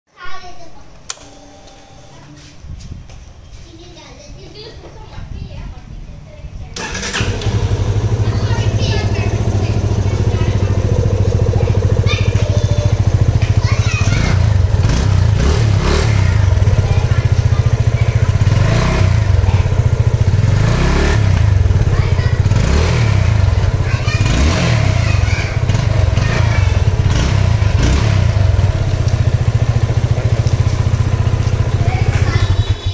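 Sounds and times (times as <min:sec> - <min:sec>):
engine revving: 0:06.8 - 0:32.9
motorcycle engine idling: 0:06.8 - 0:32.9.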